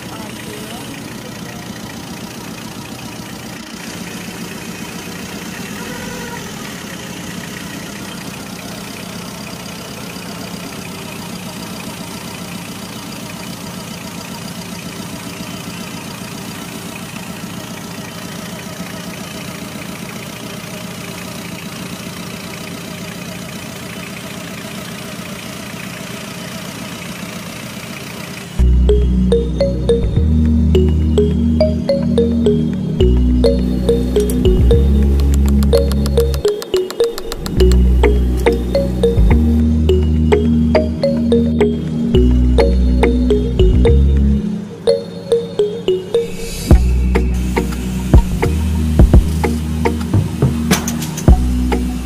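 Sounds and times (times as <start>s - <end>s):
engine idling: 0.0s - 44.9s, 46.4s - 52.0s.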